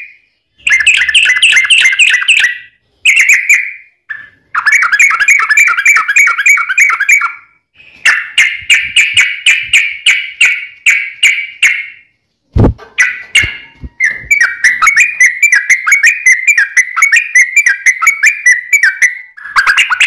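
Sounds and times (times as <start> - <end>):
bird singing rapid chirping song: 0.0 - 12.2, 13.0 - 20.0
short dull thump: 12.6 - 13.0.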